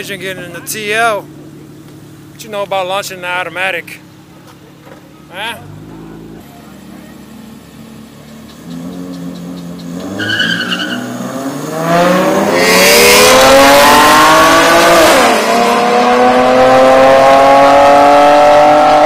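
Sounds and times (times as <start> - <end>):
car engines accelerating: 0.0 - 19.0
high tyre squeal: 8.3 - 11.4.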